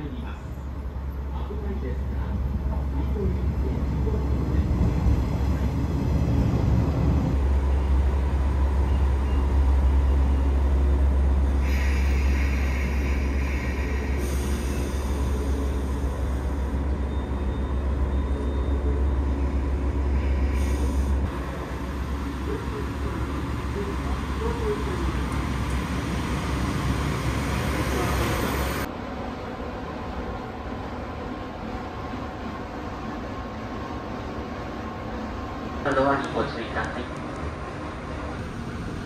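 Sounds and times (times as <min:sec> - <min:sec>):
electric train rumbling to a stop: 0:00.4 - 0:39.0
train brakes hissing: 0:11.4 - 0:23.5.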